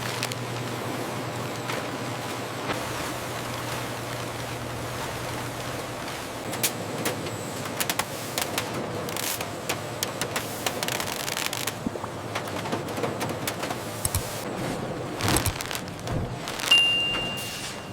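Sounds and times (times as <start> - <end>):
sharp clicking and rattling: 8.4 - 11.8.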